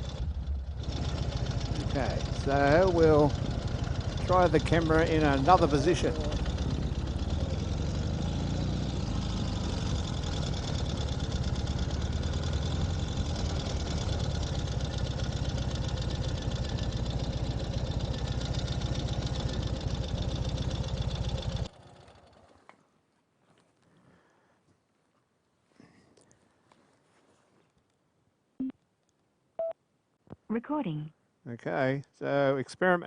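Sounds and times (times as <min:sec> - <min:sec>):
motorcycle engine idling: 0:00.0 - 0:22.7.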